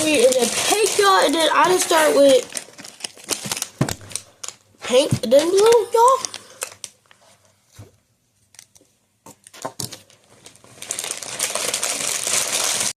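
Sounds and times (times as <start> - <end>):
plastic wrapper crinkling: 0.0 - 7.3, 8.5 - 13.0
plastic packaging clicks and knocks: 2.5 - 7.0, 8.6 - 10.1.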